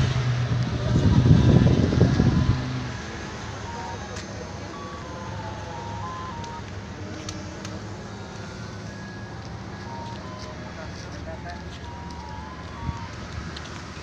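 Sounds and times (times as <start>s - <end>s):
low vehicle rumble with hiss: 0.0s - 14.0s
clicks: 5.8s - 7.8s.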